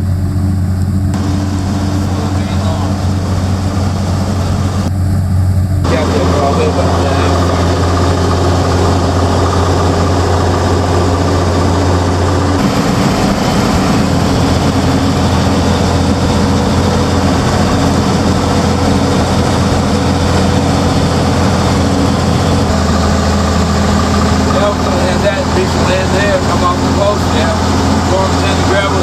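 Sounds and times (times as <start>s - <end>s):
truck diesel engine droning: 0.0s - 29.0s.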